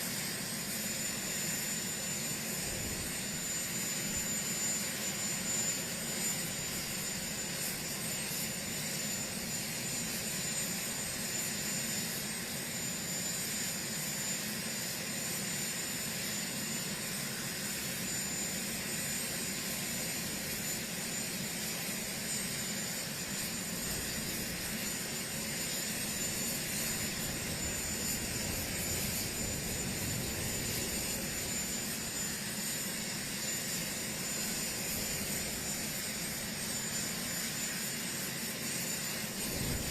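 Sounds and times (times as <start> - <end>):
helicopter engines and rotors: 0.0 - 39.9
high turbine whine: 0.0 - 39.9.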